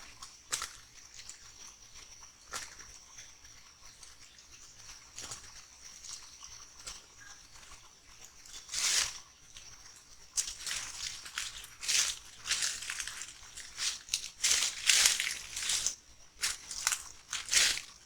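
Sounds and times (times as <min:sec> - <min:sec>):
high-pitched insect tone: 0:08.6 - 0:18.0
animal crunching in dry leaf litter: 0:10.3 - 0:18.0.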